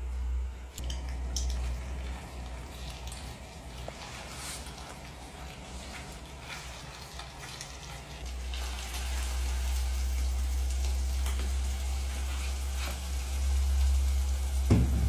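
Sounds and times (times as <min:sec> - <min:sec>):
food sizzling in a pot: 0:08.3 - 0:15.0
low rumble: 0:14.6 - 0:15.0.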